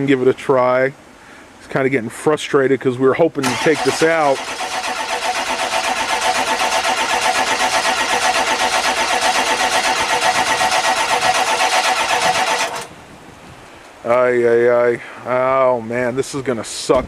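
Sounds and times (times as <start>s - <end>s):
starter motor cranking diesel engine: 3.4s - 12.9s.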